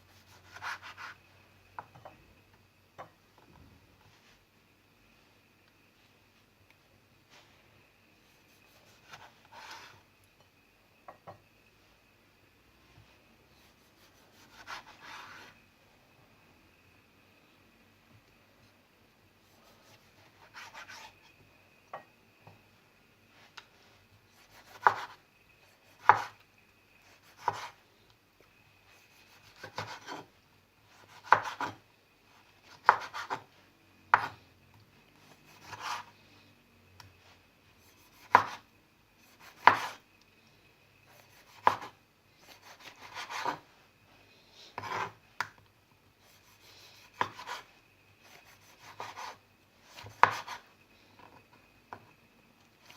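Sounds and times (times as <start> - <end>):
knife slicing on cutting board: 35.5 - 36.1, 38.2 - 38.6.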